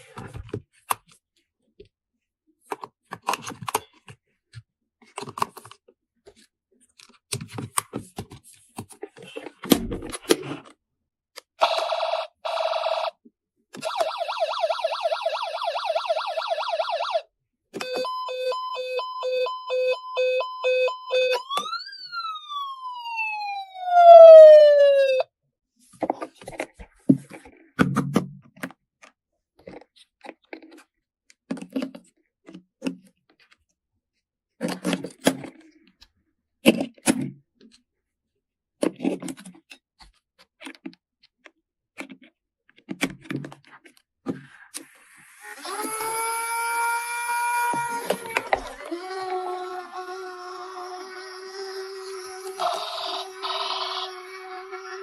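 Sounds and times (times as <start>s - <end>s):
warbling electronic siren: 11.6s - 13.1s, 13.8s - 25.3s, 45.4s - 55.0s
falling whistle tone: 17.8s - 25.2s
pulsed electronic beeps: 17.8s - 25.2s.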